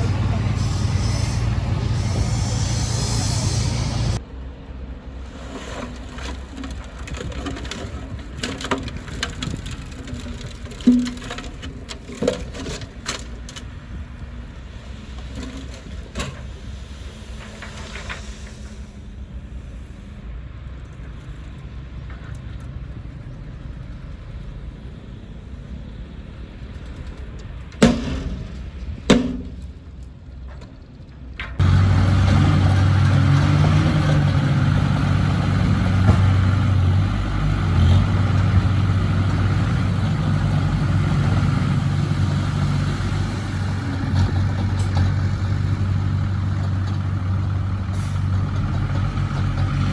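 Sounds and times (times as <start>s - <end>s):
heavy equipment engine running: 0.0s - 5.4s, 28.2s - 49.9s.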